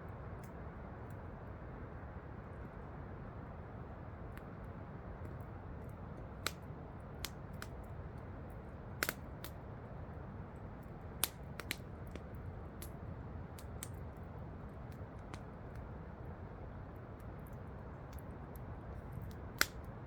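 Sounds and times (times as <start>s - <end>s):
campfire crackling and popping: 4.3s - 9.7s, 10.8s - 16.2s, 16.8s - 20.0s.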